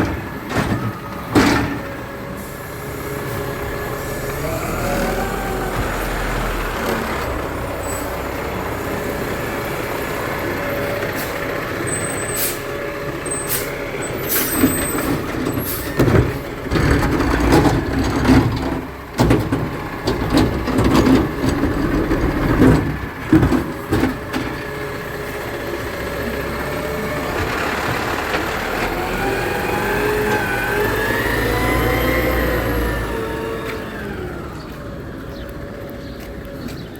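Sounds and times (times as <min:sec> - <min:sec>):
loud banging and clattering: 0:00.0 - 0:02.1, 0:14.6 - 0:24.7
garbage truck engine running: 0:00.0 - 0:36.9.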